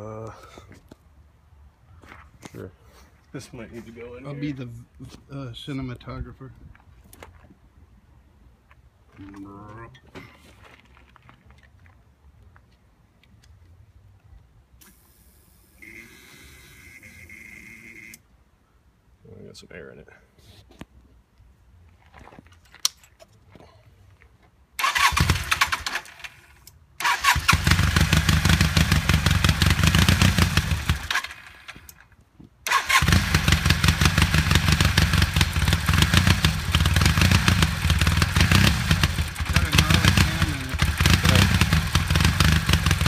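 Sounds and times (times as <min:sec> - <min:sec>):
motorcycle engine starting: 0:24.8 - 0:32.0, 0:32.6 - 0:43.0.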